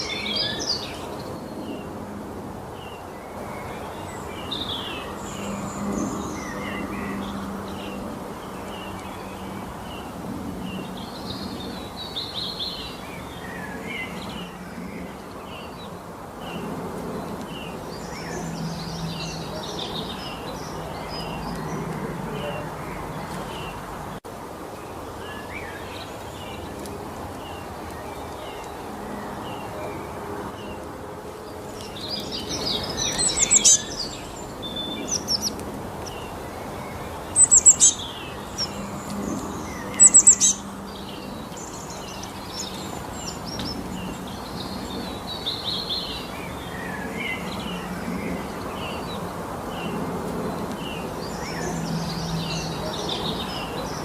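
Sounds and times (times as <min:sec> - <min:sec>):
birds chirping and singing: 0:00.0 - 0:01.9, 0:02.8 - 0:24.1, 0:31.5 - 0:54.0
loud rapid bird trills: 0:31.9 - 0:47.8.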